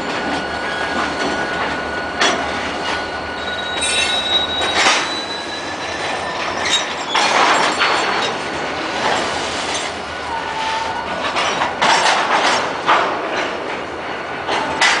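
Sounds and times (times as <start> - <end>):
high wheel squeal: 0.2 - 8.4
wheels clattering over rail joints: 3.7 - 10.1, 11.0 - 15.0.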